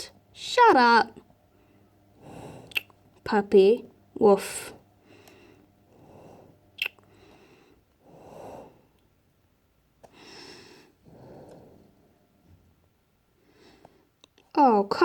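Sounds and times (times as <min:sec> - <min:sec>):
person breathing: 0:01.5 - 0:03.0, 0:04.5 - 0:09.2, 0:10.0 - 0:12.5, 0:13.3 - 0:14.2.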